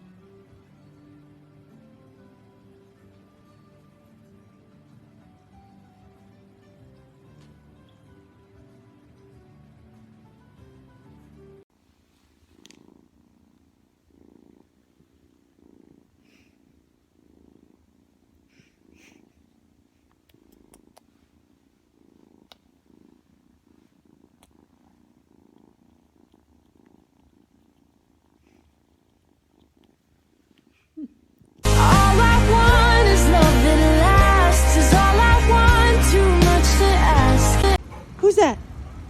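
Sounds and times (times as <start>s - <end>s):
cat purring softly: 0.0s - 37.9s
loud music: 31.7s - 37.8s.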